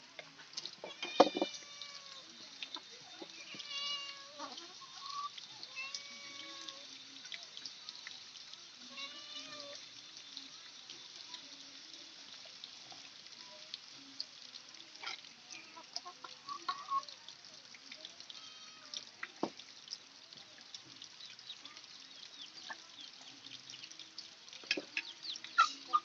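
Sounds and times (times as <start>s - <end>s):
cat meowing: 1.0s - 2.2s, 3.4s - 4.5s, 5.7s - 6.8s, 8.9s - 9.8s.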